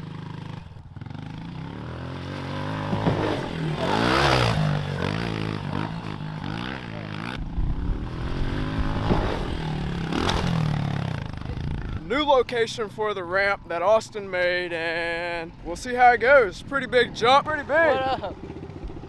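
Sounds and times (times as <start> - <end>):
dirt bike engine revving: 0.0 - 13.1.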